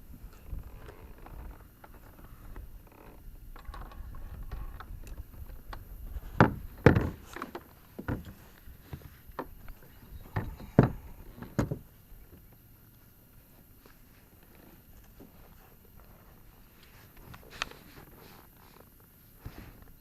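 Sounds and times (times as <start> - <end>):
knocks and thumps on kayak: 6.2 - 9.6, 10.2 - 11.9.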